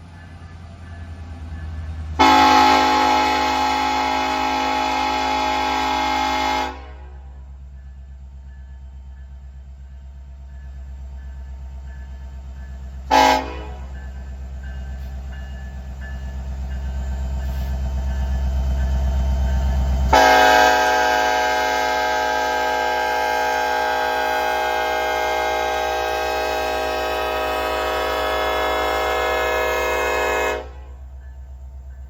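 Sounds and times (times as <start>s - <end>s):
diesel locomotive engine rumbling: 0.0s - 32.0s
train horn: 2.1s - 7.5s, 13.1s - 14.0s, 20.1s - 31.1s.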